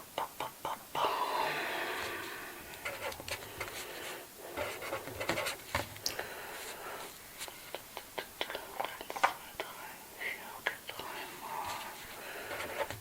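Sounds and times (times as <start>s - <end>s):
scratchy rubbing: 2.0s - 5.8s, 11.4s - 13.0s.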